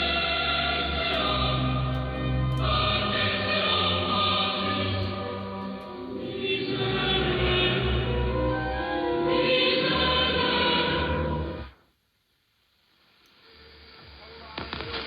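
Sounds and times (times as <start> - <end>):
choir singing over am radio: 0.0 - 11.8.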